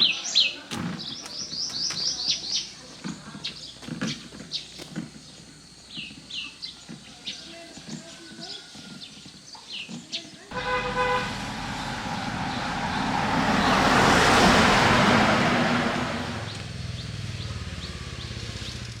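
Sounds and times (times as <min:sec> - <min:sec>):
vehicle horn toot: 0:10.5 - 0:16.1
motor vehicle passing: 0:10.5 - 0:19.0.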